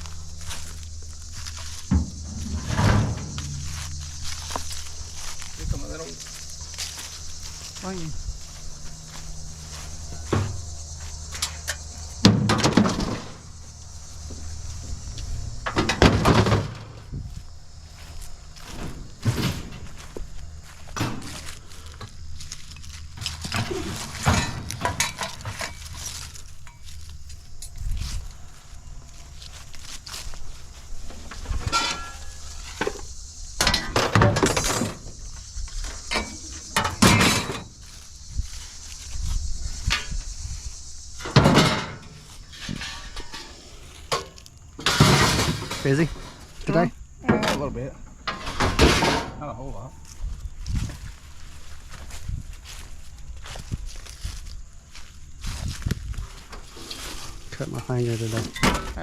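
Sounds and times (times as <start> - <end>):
scrap metal clanking: 0.0 - 7.8, 22.8 - 27.7, 31.1 - 37.7, 41.2 - 46.6, 47.3 - 49.4
low hum: 0.0 - 44.7.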